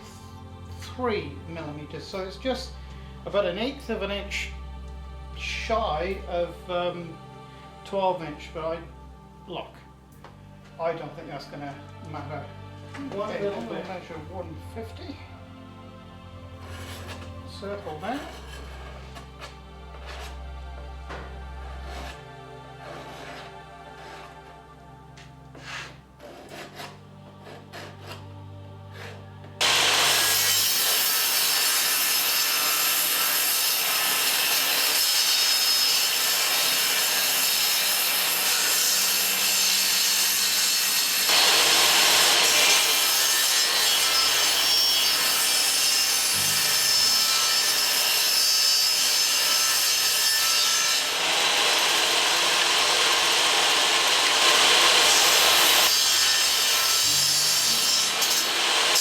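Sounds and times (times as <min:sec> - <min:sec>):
saw cutting plywood: 0:16.6 - 0:20.4, 0:21.2 - 0:24.6, 0:25.5 - 0:28.3, 0:28.9 - 0:59.0.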